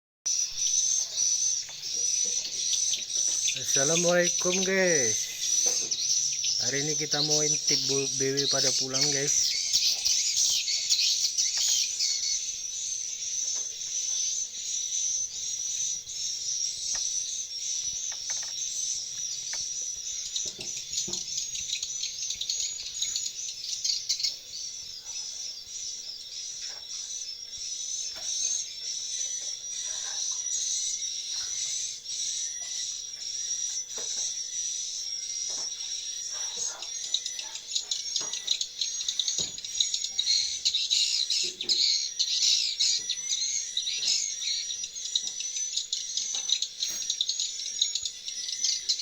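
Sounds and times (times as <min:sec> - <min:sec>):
swiftlets twittering: 0:00.3 - 0:26.2.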